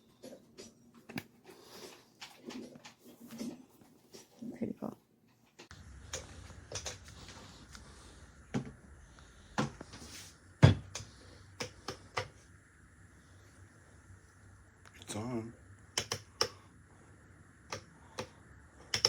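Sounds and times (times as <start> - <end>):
heater clicking and knocking: 5.3 - 12.7, 14.4 - 19.0
low hum: 5.7 - 19.0.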